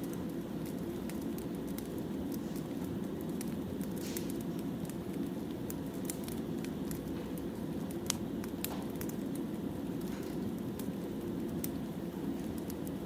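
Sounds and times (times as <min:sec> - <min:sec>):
firewood burning and popping: 0:00.0 - 0:13.0.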